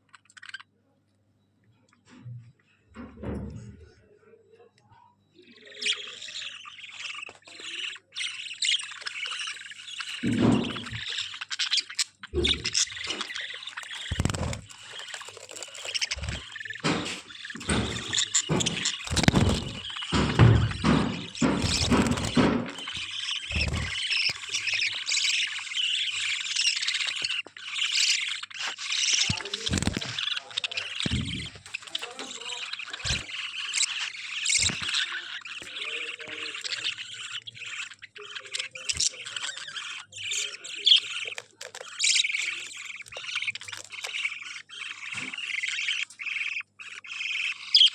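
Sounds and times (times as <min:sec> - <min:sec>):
bird squawks and clicks: 0:00.0 - 0:00.7, 0:05.5 - 0:47.9
budgerigars chattering: 0:05.4 - 0:47.9.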